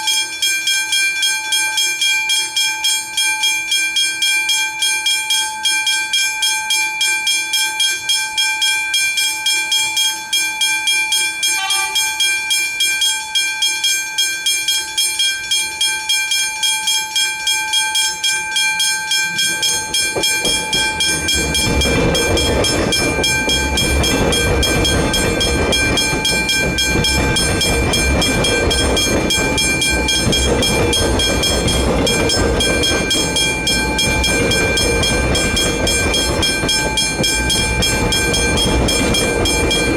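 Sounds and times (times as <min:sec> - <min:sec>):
level crossing warning bells: 0:00.0 - 0:39.9
passing train rumble: 0:11.6 - 0:12.4, 0:19.3 - 0:39.9.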